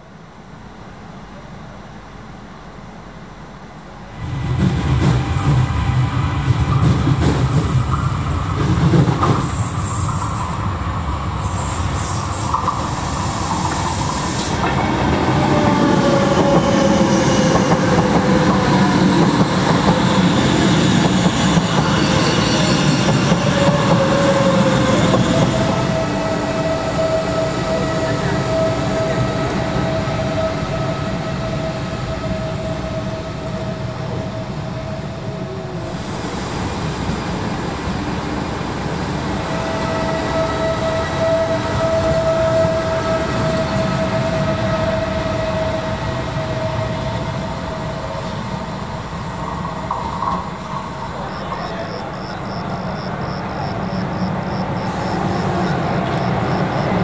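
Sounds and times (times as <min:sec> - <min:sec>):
train rumble: 0:00.0 - 0:57.0
train wheel squeal: 0:04.9 - 0:36.0, 0:39.3 - 0:57.0.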